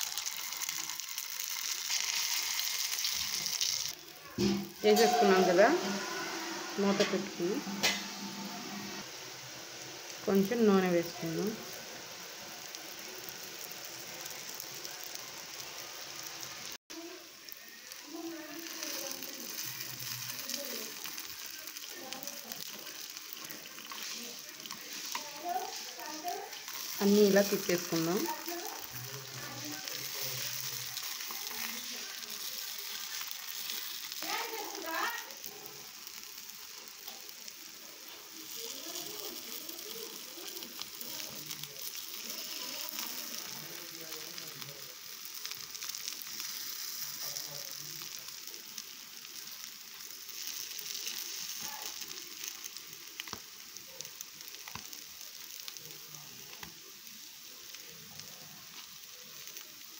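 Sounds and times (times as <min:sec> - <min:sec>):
batter sizzling in oil: 0:00.0 - 0:59.9.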